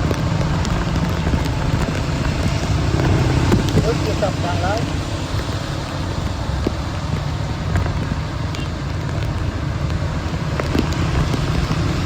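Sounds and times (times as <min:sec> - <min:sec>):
low rumble: 0:00.0 - 0:08.4
heavy rain hissing: 0:00.0 - 0:12.0.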